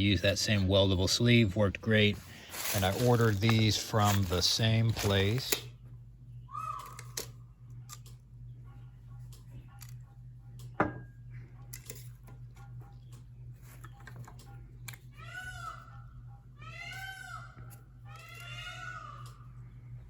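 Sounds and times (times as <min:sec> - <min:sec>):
steady low hum: 0:00.0 - 0:20.0
animal call: 0:06.5 - 0:07.2.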